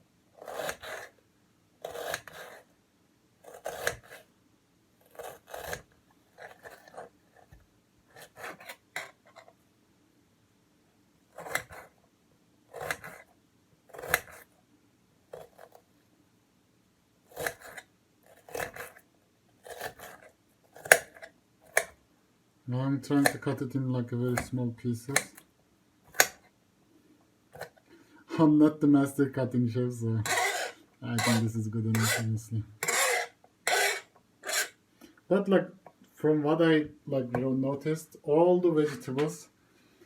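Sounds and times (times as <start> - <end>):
knife cutting onion: 0.4 - 1.2, 1.8 - 2.7, 3.4 - 4.3, 5.0 - 7.1, 11.3 - 12.0, 12.7 - 13.3, 13.9 - 14.5, 17.3 - 19.0, 19.6 - 22.0, 23.2 - 23.6, 24.2 - 25.4, 26.1 - 26.4, 30.2 - 34.8.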